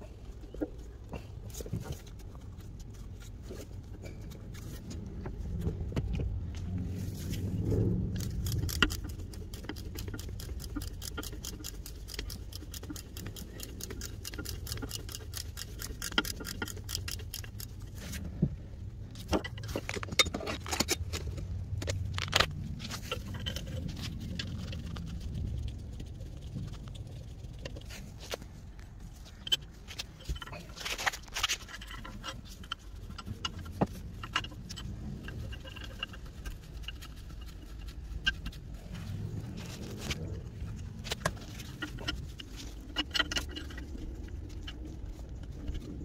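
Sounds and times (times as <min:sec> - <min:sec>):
low steady rumble: 0:00.0 - 0:46.0
small metallic clicks: 0:08.0 - 0:18.3
metal parts knocking and scraping: 0:08.0 - 0:26.8, 0:27.5 - 0:46.0.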